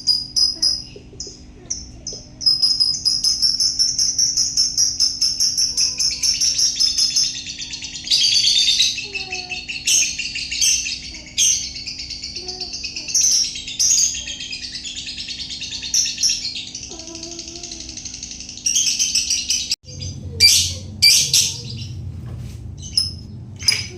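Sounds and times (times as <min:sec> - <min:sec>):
lovebird chattering trill: 0:00.0 - 0:22.0.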